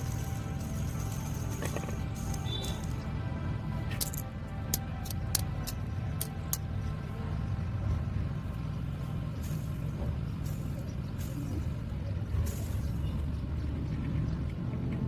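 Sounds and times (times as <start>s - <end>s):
low hum and rumble: 0.0s - 15.0s.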